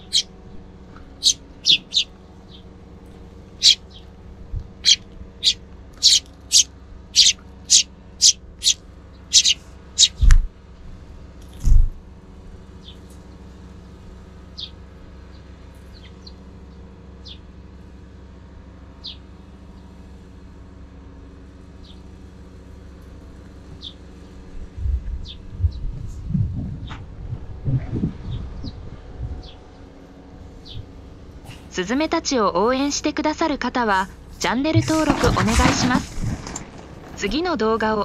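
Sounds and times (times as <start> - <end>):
sparrows chirping: 0.0 - 10.3, 12.6 - 17.5, 19.0 - 20.1, 21.7 - 22.4, 23.2 - 27.1, 27.8 - 36.0
steady low rumble: 0.0 - 16.8, 22.8 - 38.0
low thumps: 24.6 - 29.6.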